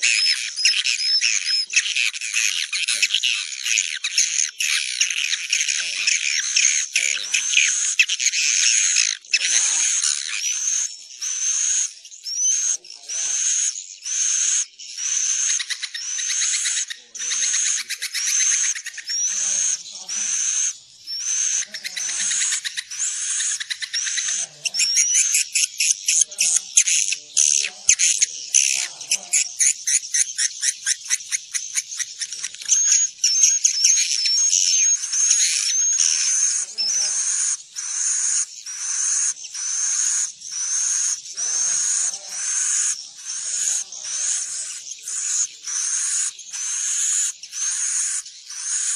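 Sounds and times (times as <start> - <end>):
swiftlets chirping: 15.2 - 48.9.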